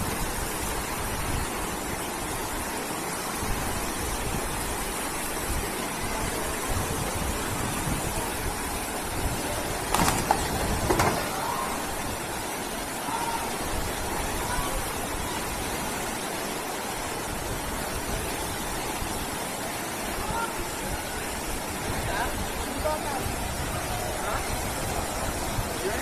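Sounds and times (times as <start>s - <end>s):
floodwater rushing: 0.0s - 26.0s
loud knocks: 9.9s - 11.4s.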